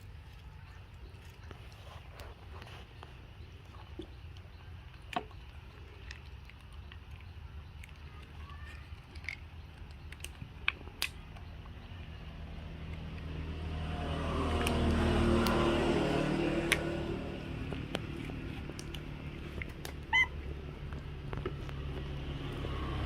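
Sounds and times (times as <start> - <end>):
low engine hum: 9.4 - 23.0
vehicle approaching: 11.0 - 23.0.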